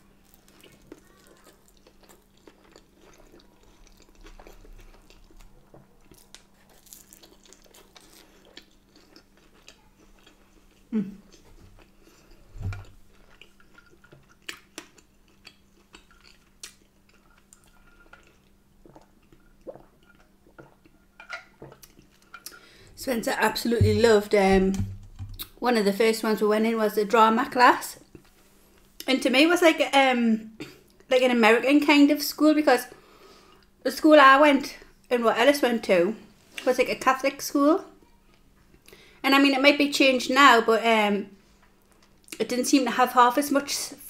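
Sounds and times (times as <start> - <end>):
person chewing: 0.1 - 22.8
soft thumps: 23.7 - 25.4.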